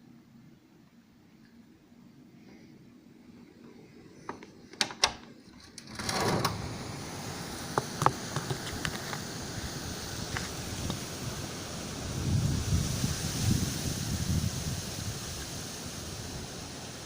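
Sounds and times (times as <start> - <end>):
blizzard wind rushing: 5.9 - 17.0
wind buffeting microphone: 6.0 - 17.0.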